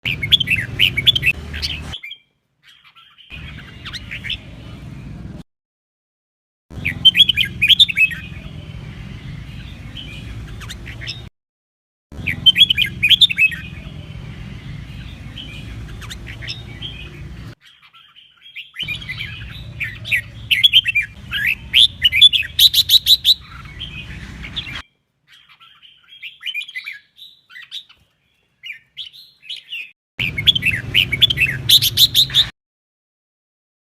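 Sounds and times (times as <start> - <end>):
bird warbling: 15.3 - 27.9.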